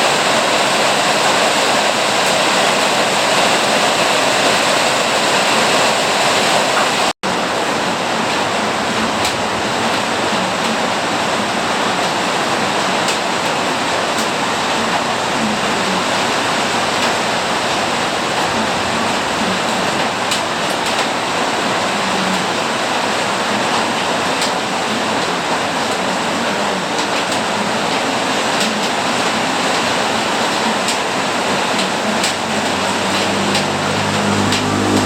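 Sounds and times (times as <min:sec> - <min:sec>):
heavy rain falling: 0:00.0 - 0:35.0
vehicle engine hum: 0:31.5 - 0:35.0.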